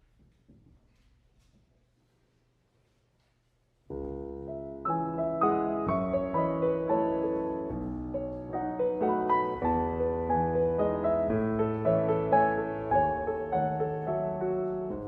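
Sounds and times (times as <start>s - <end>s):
piano piece: 3.9s - 15.0s.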